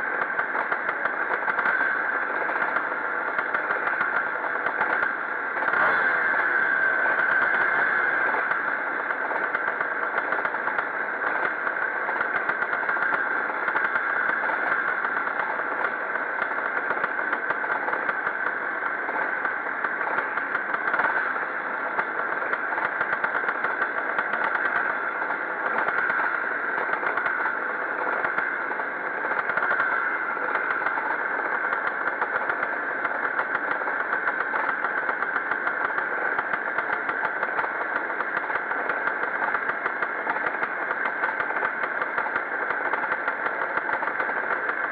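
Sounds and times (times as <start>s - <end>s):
motocross motorcycles racing: 4.8s - 16.0s.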